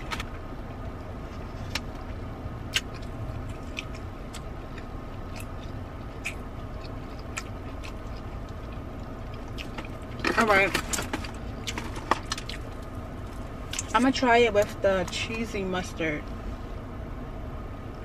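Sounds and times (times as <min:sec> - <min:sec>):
car air conditioning hum: 0:00.0 - 0:18.0
chewing and biting food: 0:02.6 - 0:13.9.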